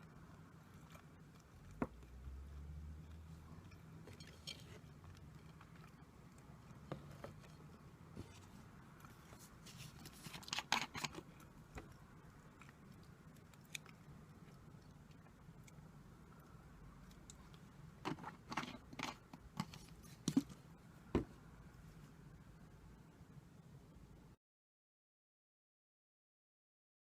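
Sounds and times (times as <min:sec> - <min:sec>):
crunchy crackles of chewing: 0:00.0 - 0:02.3, 0:03.0 - 0:17.9.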